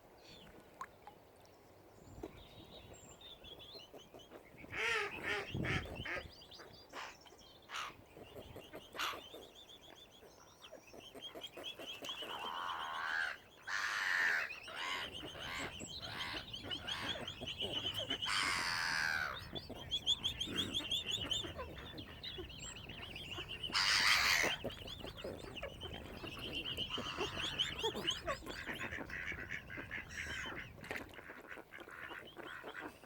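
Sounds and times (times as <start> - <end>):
small birds trilling: 2.3 - 30.8
waterfowl honking: 12.5 - 33.0.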